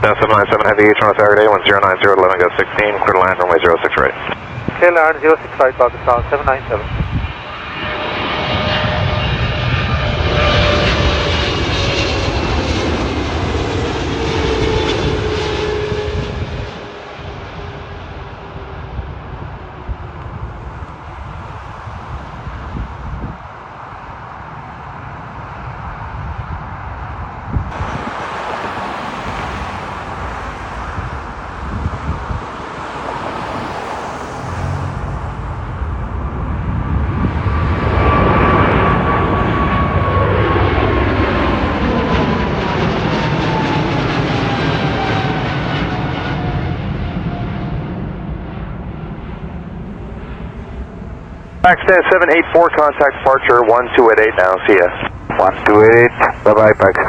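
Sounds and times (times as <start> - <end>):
jet engines rumbling and whining: 0.0 - 57.0
wind buffeting microphone: 4.2 - 42.1.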